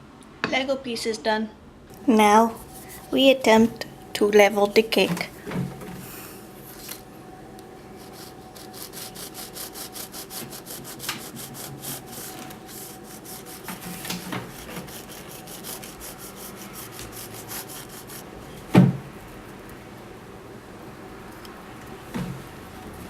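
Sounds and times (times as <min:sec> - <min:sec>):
knife sawing through cake: 0:08.0 - 0:18.3.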